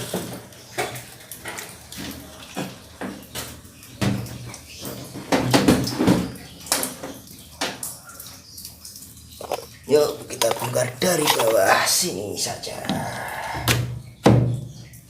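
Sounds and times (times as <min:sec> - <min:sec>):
washing machine knocking and scraping: 0:05.1 - 0:06.4.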